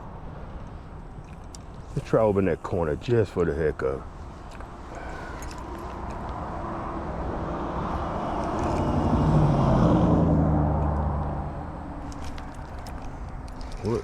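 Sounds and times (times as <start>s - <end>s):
motor vehicle passing by: 4.8s - 14.0s.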